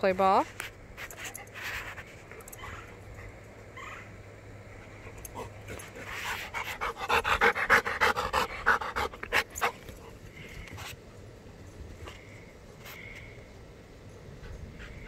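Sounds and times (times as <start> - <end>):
dog panting: 5.0 - 10.9.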